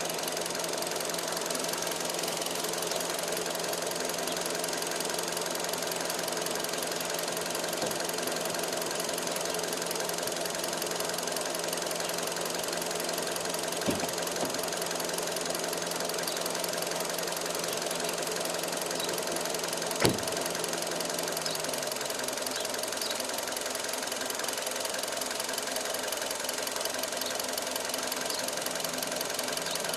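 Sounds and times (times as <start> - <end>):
car engine idling: 0.0 - 29.9
short sharp knocks: 13.8 - 14.6.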